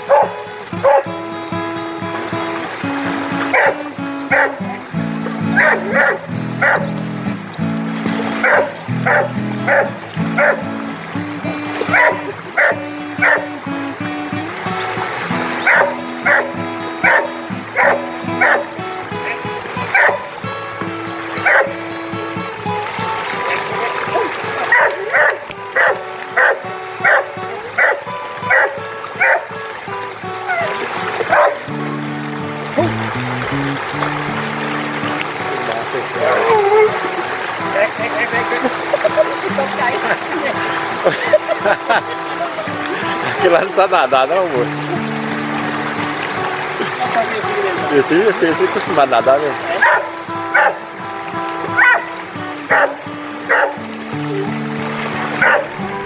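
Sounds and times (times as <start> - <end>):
dog barking: 0.0 - 1.2, 3.5 - 4.7, 5.5 - 7.0, 8.4 - 10.8, 11.8 - 13.6, 15.6 - 20.3, 21.4 - 21.8, 23.5 - 29.6, 30.4 - 31.7, 49.8 - 50.9, 51.8 - 53.8, 55.4 - 55.8
background music with held chords: 0.0 - 56.0.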